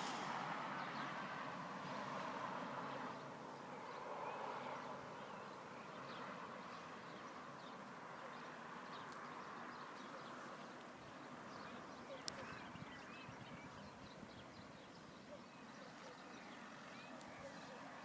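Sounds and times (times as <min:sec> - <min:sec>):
birds chirping: 0:00.0 - 0:01.3, 0:02.8 - 0:18.0
steady rushing noise: 0:00.0 - 0:01.8.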